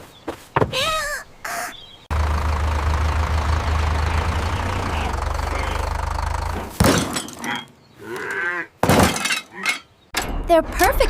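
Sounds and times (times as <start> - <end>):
tractor engine rumbling: 2.1 - 8.4.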